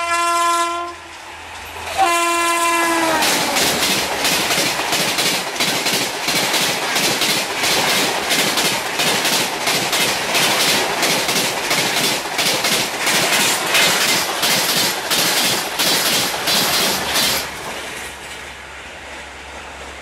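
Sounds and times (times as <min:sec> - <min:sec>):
train coaches rushing past: 0:00.0 - 0:20.0
wheels clacking on rail joints: 0:00.8 - 0:20.0.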